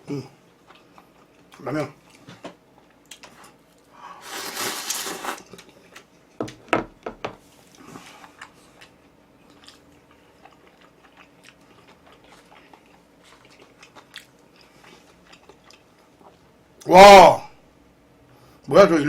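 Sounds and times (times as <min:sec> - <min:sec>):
noodles slurped: 0:04.2 - 0:05.6.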